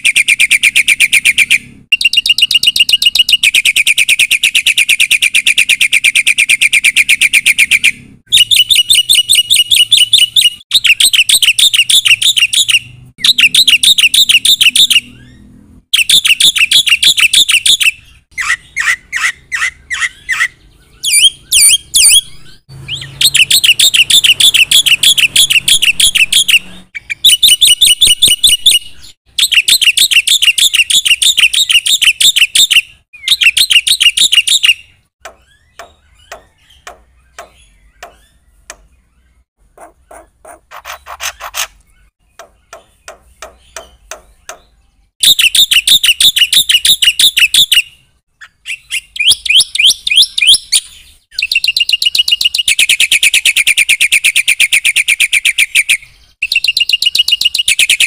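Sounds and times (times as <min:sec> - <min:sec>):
bird whistles rising: 0:00.0 - 0:38.5
starling chattering song: 0:00.0 - 0:53.6.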